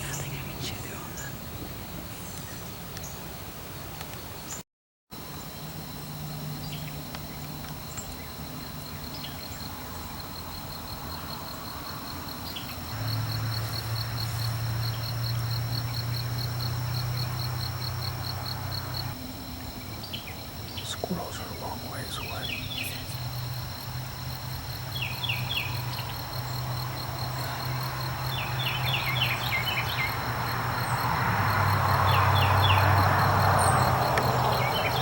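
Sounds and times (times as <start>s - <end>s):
insects chirping: 0.0s - 4.6s, 5.2s - 35.0s.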